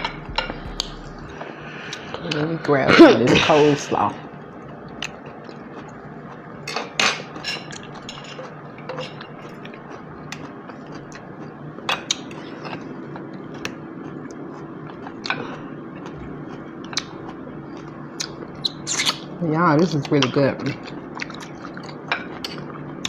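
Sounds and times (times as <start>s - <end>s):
low steady hum: 0.0s - 4.9s.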